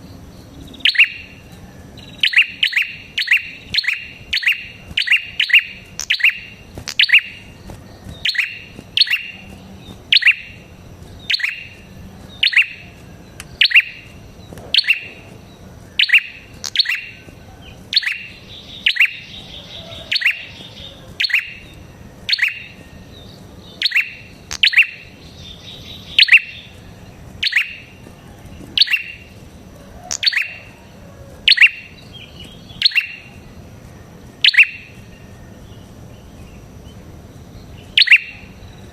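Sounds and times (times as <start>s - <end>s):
bird sharp chirps: 0.0s - 30.9s, 31.5s - 33.5s, 34.4s - 38.9s.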